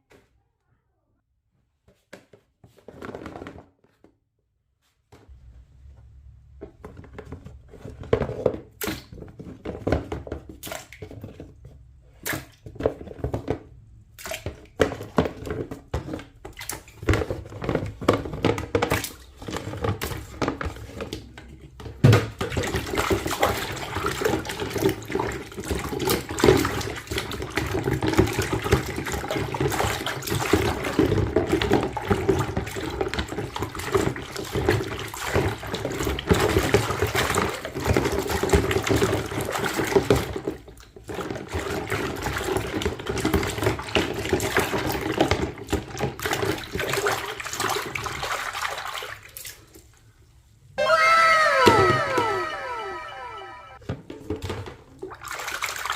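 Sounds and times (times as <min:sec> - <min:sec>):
plastic toys knocking and clicking: 0:06.6 - 0:46.8.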